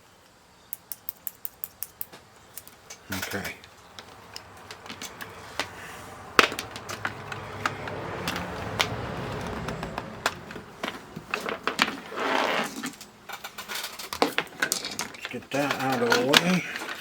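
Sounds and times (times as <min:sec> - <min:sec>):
short scraping rush: 0:04.4 - 0:13.0.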